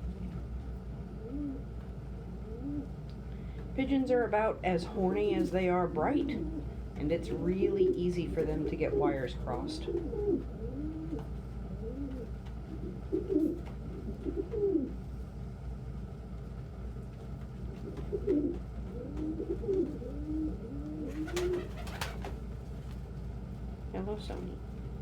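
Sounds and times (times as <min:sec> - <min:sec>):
steady low hum: 0:00.0 - 0:25.0
pigeons cooing: 0:01.0 - 0:03.0, 0:06.0 - 0:06.8, 0:08.4 - 0:15.0, 0:17.7 - 0:22.4.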